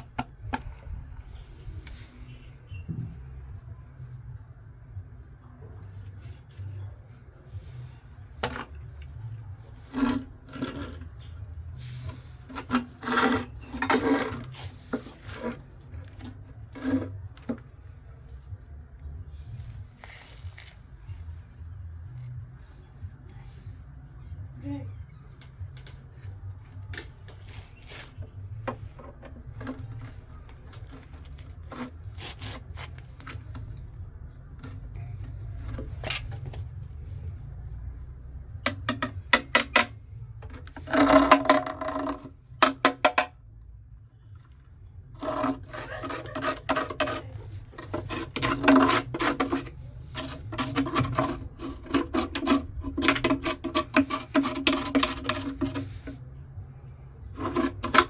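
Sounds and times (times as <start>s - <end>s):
scraping and rubbing strokes: 45.2s - 56.3s, 57.2s - 58.0s.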